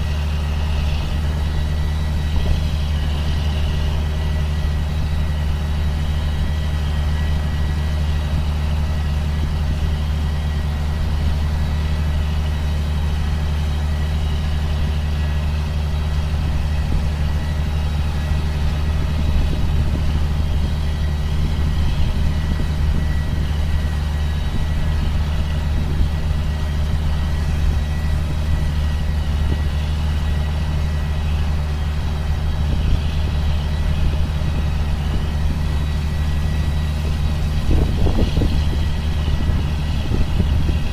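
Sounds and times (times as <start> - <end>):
high whine: 0.0 - 40.9
sprayer engine droning: 0.0 - 40.9.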